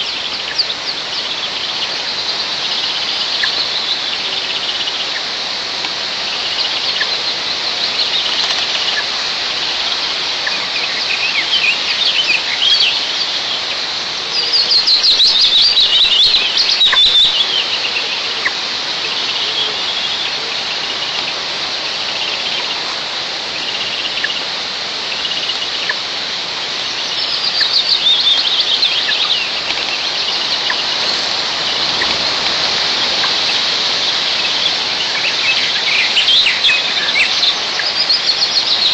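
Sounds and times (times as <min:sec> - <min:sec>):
songbird trilled songs: 0:00.0 - 0:05.3, 0:06.2 - 0:22.8, 0:26.8 - 0:38.9
wind in pine trees: 0:00.0 - 0:38.9
bird chirps: 0:09.8 - 0:21.2, 0:26.9 - 0:38.9.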